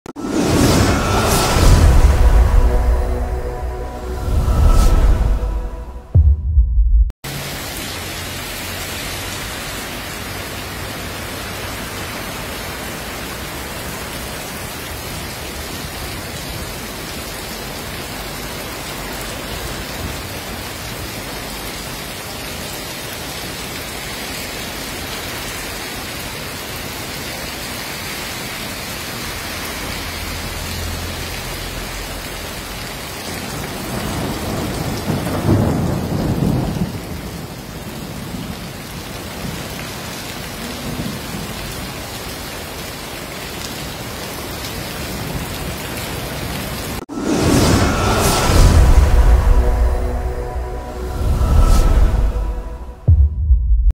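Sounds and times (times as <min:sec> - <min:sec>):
heavy rain on a street: 0:00.1 - 0:03.5, 0:07.2 - 0:52.8
thunder rumble: 0:00.2 - 0:07.2, 0:33.5 - 0:38.6, 0:47.1 - 0:53.9.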